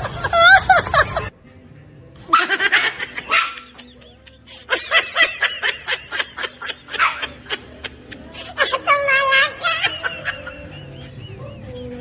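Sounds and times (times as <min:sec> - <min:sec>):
dog barking: 0:02.3 - 0:03.8, 0:06.9 - 0:07.4.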